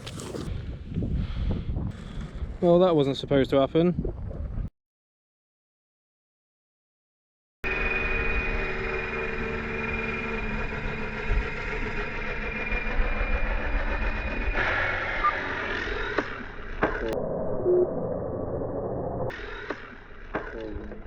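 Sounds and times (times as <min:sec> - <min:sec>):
rc helicopter motor whine: 0:07.6 - 0:17.2.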